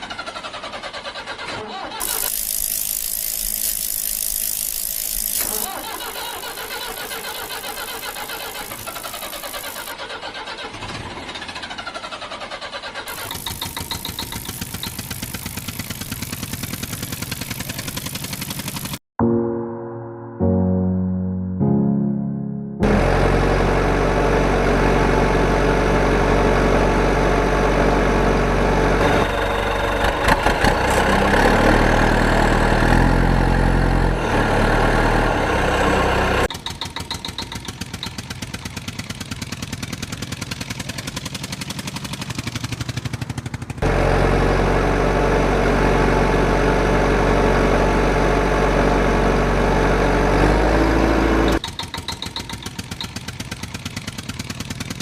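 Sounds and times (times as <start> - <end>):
tractor engine running: 0.0 - 19.0, 22.8 - 55.0.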